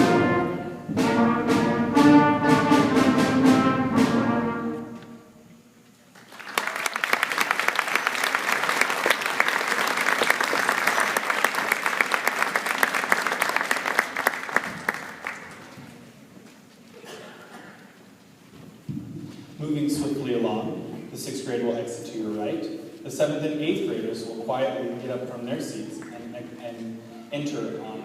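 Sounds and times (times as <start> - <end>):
band chord with brass: 0.0 - 5.4
audience applauding: 6.1 - 16.0.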